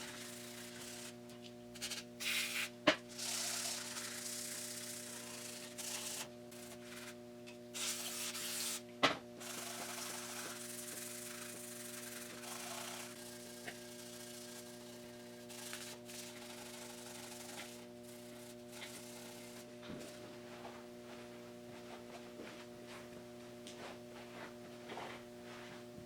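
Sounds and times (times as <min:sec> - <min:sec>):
steady hum: 0:00.0 - 0:26.0
scrubbing with abrasive pad: 0:01.8 - 0:07.2, 0:09.4 - 0:20.3.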